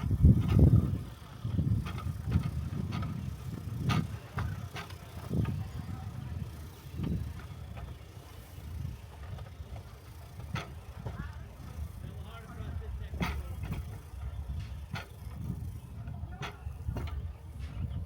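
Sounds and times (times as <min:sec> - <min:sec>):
steel wheels rumbling on track: 0:00.0 - 0:18.0
wheel clicks and knocks: 0:00.0 - 0:18.0.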